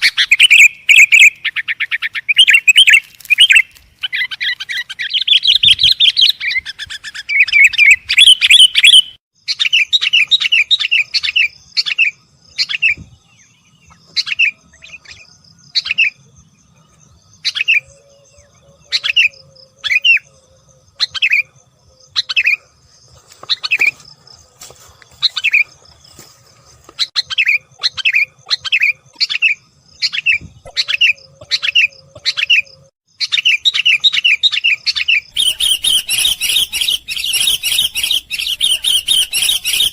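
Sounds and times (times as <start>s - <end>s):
bulbul calling: 0.0s - 13.2s, 26.9s - 39.9s.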